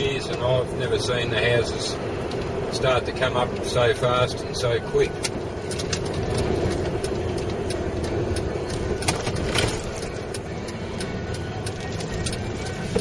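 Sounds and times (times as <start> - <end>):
truck engine and road noise: 0.0 - 13.0
small rattles and clicks: 5.2 - 13.0.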